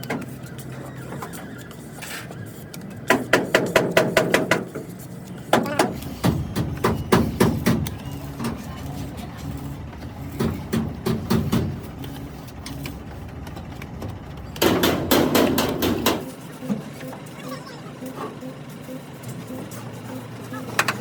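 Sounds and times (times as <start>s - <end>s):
hammer on metal: 3.1s - 4.8s, 10.4s - 11.8s, 14.6s - 16.3s.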